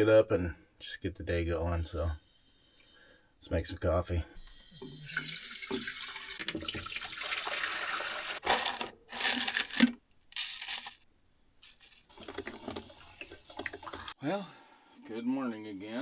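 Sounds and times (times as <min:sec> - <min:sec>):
tap water running into container: 0:04.8 - 0:10.0, 0:12.1 - 0:14.2.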